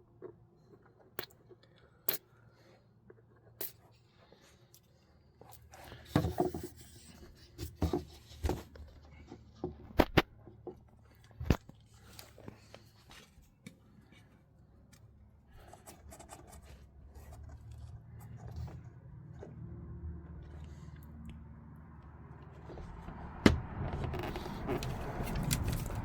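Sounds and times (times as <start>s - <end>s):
wood scraping and rubbing: 22.6s - 26.0s.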